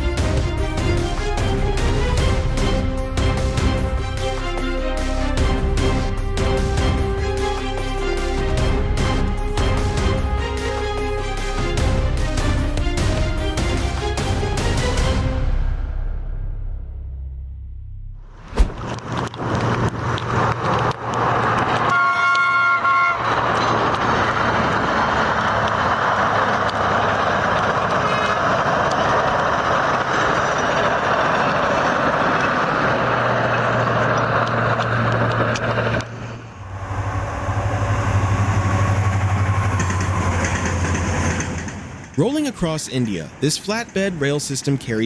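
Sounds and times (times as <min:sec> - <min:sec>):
passing train rushing and rumbling: 0:00.0 - 0:15.9, 0:18.5 - 0:45.0
low humming rumble: 0:15.8 - 0:42.2
train horn chord: 0:21.8 - 0:24.2.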